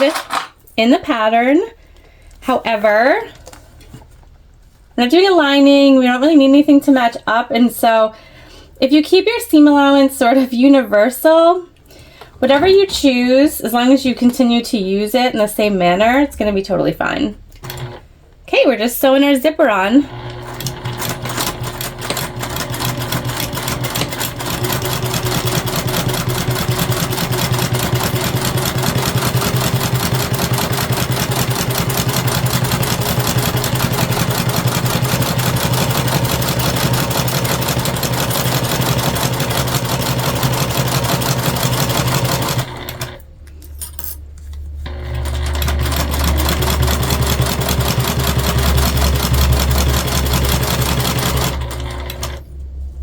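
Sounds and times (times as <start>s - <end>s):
sewing machine stitching: 0.0s - 0.5s, 17.6s - 18.0s, 20.0s - 43.2s, 44.8s - 52.4s.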